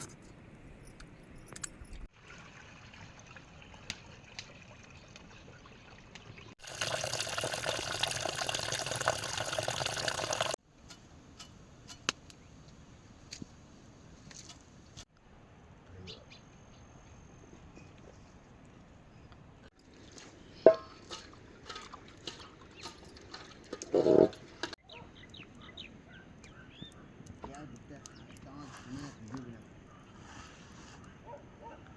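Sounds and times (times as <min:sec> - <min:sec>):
water trickling and pouring: 0:02.1 - 0:10.6
water drips: 0:02.2 - 0:10.6.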